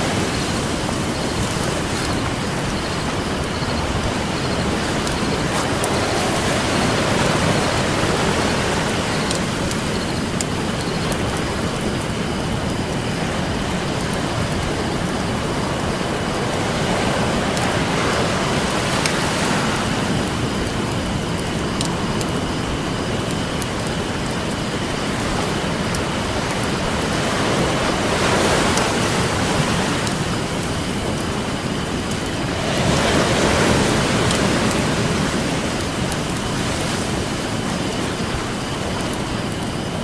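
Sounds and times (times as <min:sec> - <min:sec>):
campfire crackling: 0:00.0 - 0:40.0
ocean surf: 0:00.0 - 0:40.0.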